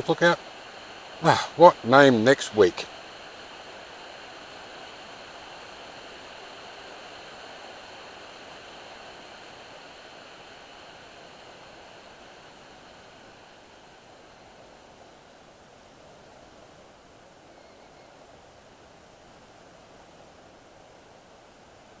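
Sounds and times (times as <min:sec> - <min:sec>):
waterfall rushing: 0:00.0 - 0:17.4.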